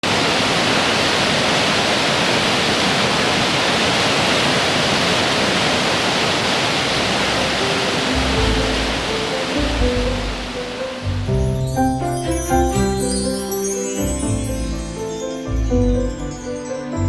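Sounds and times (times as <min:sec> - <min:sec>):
waterfall rushing: 0:00.0 - 0:15.7
music: 0:07.1 - 0:17.0.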